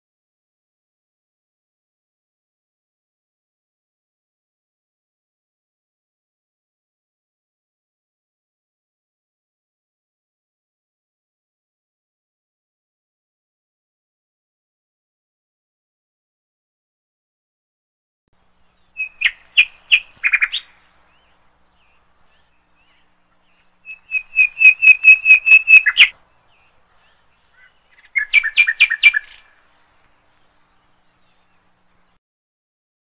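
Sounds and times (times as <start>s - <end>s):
bird chirping: 18.4s - 32.2s.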